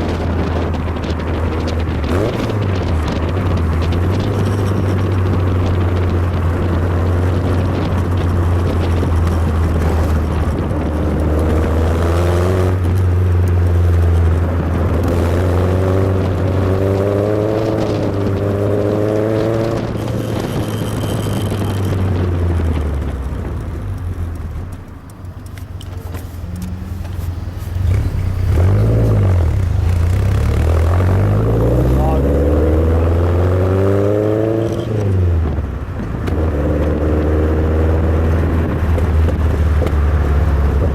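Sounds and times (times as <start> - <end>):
sports car engine rumbling: 0.0 - 40.9.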